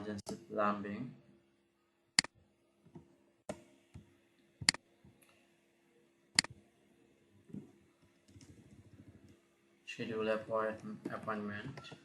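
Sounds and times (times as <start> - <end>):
faint steady hum: 0.0 - 12.0
computer mouse clicking: 8.2 - 9.4.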